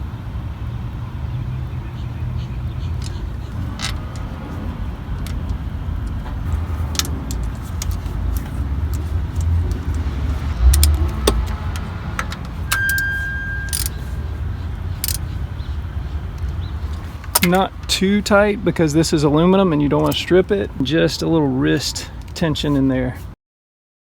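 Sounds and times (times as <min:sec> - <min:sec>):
steady low rumble: 0:00.0 - 0:22.5
metallic clicks of hand tools: 0:12.2 - 0:14.0, 0:15.0 - 0:15.3, 0:16.4 - 0:17.6
high-pitched tone: 0:12.7 - 0:14.3.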